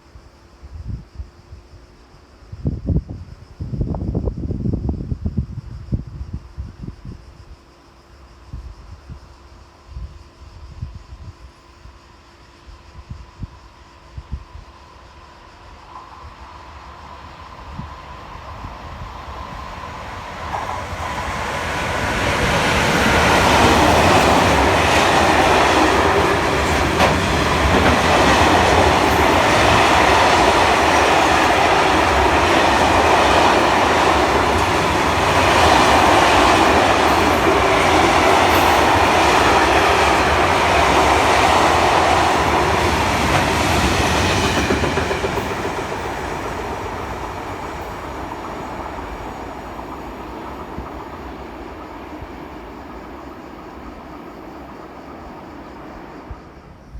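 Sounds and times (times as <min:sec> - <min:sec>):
train wheels running over rails: 0:15.6 - 0:56.9.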